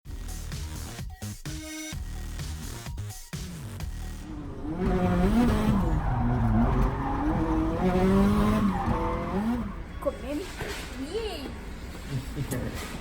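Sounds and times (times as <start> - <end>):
car engine revving: 3.8 - 13.0
tyre squeal: 4.4 - 11.1.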